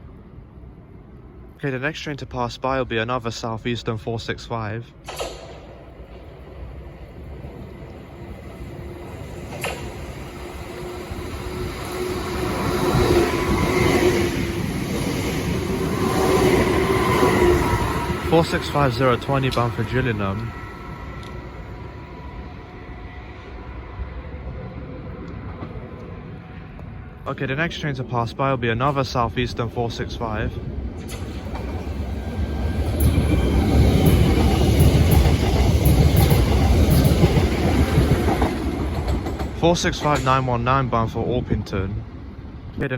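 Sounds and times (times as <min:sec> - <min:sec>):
electric train passing: 0:00.0 - 0:42.8
rail and wheel noise: 0:00.0 - 0:42.9
wheels clicking over rail joints: 0:09.5 - 0:10.6, 0:30.9 - 0:40.8.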